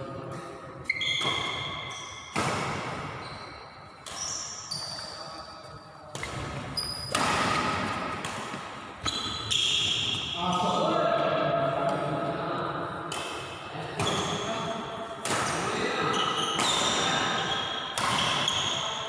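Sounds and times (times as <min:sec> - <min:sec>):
shoes squeaking on court floor: 0:00.2 - 0:10.8, 0:13.8 - 0:14.7, 0:16.0 - 0:19.0
rackets hitting shuttlecock: 0:00.3 - 0:03.2, 0:06.1 - 0:10.2, 0:13.0 - 0:19.0.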